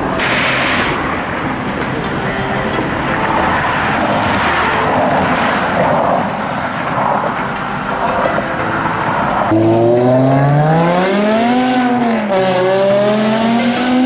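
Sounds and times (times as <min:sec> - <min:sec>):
street traffic: 0:00.0 - 0:14.0.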